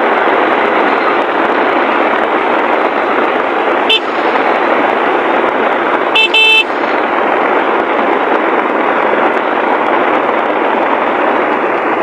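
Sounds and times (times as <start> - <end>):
heavy rain on plastic windscreen: 0.0 - 12.0
vehicle horn beeping: 3.9 - 4.3, 6.2 - 6.9.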